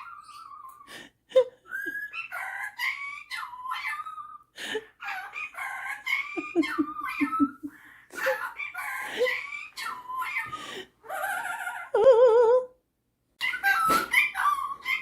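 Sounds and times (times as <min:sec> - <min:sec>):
parrot chattering and warbling: 0:00.0 - 0:00.9, 0:01.6 - 0:12.8, 0:13.4 - 0:15.0
parrot laugh-like notes: 0:05.0 - 0:12.7.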